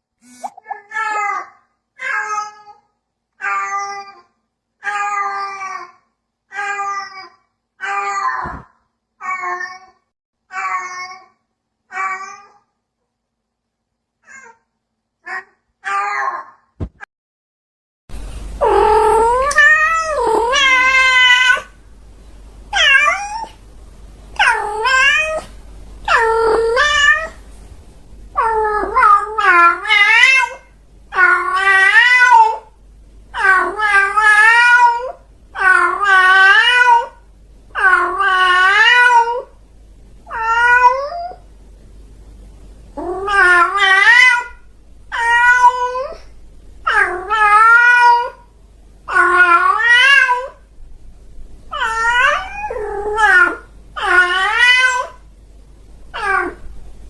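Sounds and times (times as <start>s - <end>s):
cat meowing: 18.6s - 21.7s, 22.8s - 23.6s, 24.4s - 25.5s, 40.3s - 41.4s, 43.0s - 46.3s, 46.9s - 48.4s, 49.1s - 50.6s, 51.7s - 55.2s, 56.2s - 56.6s.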